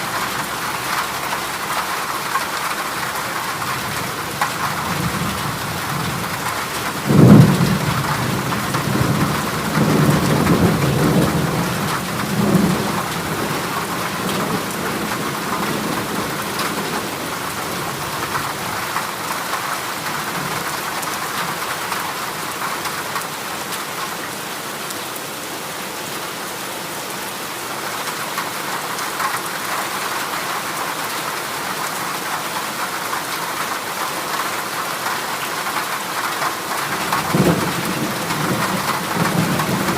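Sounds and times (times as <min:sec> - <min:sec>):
heavy rain on a metal roof: 0:00.0 - 0:39.9
thunder rumbling: 0:03.7 - 0:19.0, 0:36.8 - 0:39.9.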